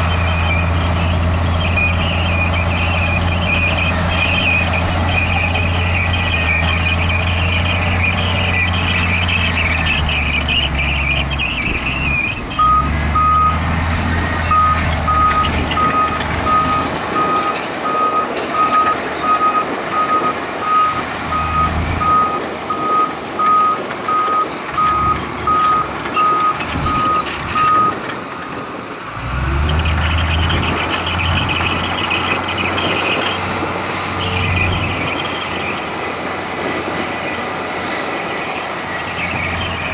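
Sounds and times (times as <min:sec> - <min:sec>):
high squeal: 0:00.0 - 0:22.9, 0:24.1 - 0:28.0, 0:29.5 - 0:39.9
heavy machine diesel engine: 0:00.0 - 0:39.9
reversing alarm beeping: 0:12.6 - 0:13.6, 0:14.4 - 0:28.0.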